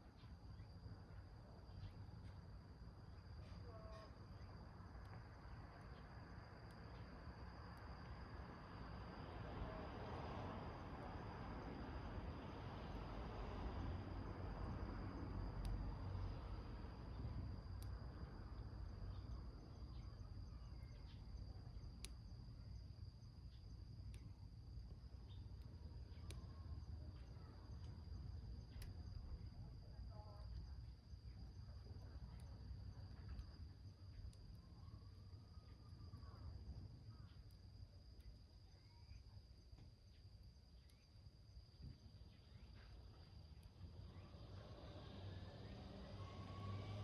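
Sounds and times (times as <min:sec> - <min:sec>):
high insect trill: 0:10.5 - 0:47.0.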